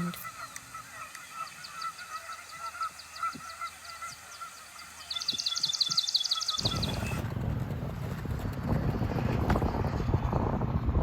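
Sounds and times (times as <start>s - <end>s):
goose honking: 0.0s - 7.2s
small birds chirping: 0.0s - 7.2s
wind buffeting microphone: 5.2s - 11.0s.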